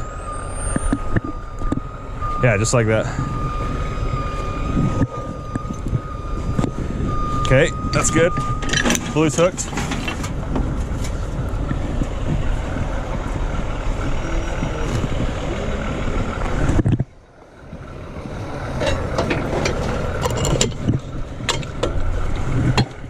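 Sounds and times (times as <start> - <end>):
heavy truck engine running: 0.0 - 23.0
metallic clanks of rigging: 18.8 - 22.0.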